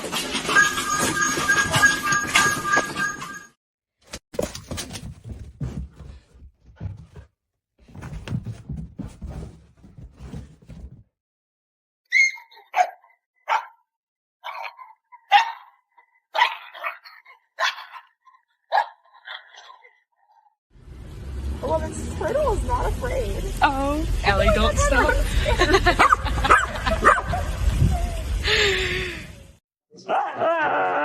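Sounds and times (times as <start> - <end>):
scuffling and knocking: 4.1 - 11.1
dog barking: 12.3 - 13.8, 14.4 - 19.4, 26.0 - 27.6.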